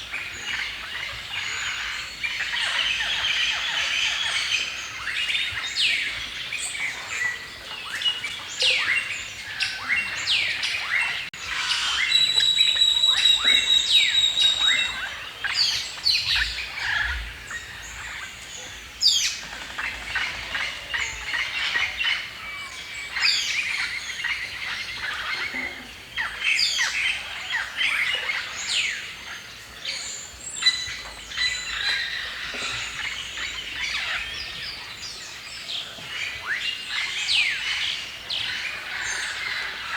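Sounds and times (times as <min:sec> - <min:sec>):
songbirds chirping and singing: 0:00.0 - 0:39.9
bird high steady whistle: 0:11.8 - 0:15.0.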